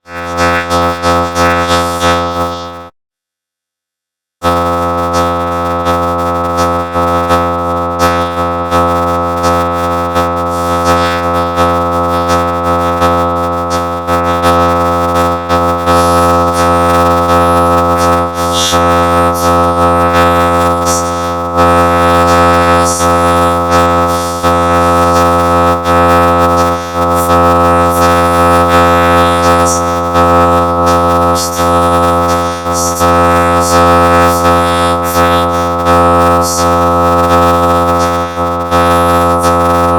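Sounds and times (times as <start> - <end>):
distorted droning sing-along song: 0.0 - 2.9, 4.4 - 39.9.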